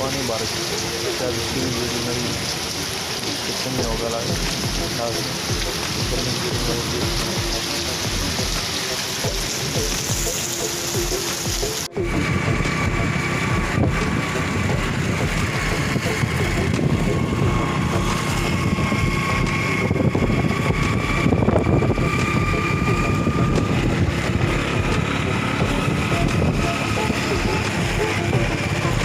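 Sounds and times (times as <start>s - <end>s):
rain falling: 0.0s - 29.0s
steady high whine: 3.8s - 29.0s
low rumble: 11.9s - 29.0s.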